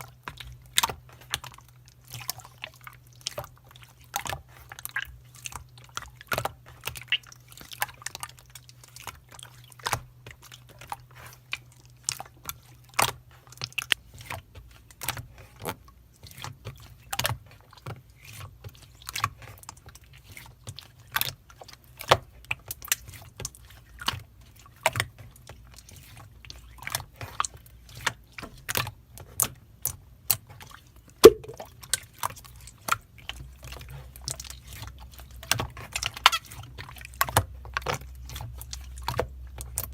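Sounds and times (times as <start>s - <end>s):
slime clicking and popping: 31.2s - 31.6s.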